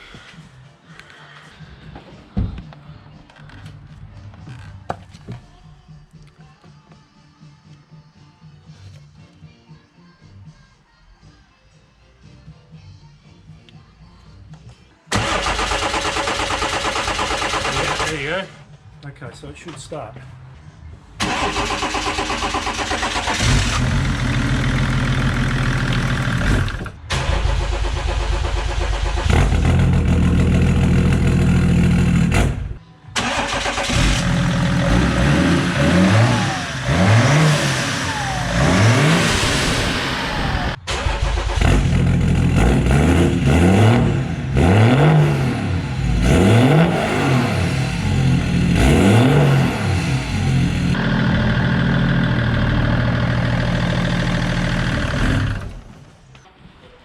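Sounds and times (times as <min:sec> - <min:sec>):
diesel engine idling and revving: 0:15.1 - 0:18.7, 0:20.4 - 0:56.2.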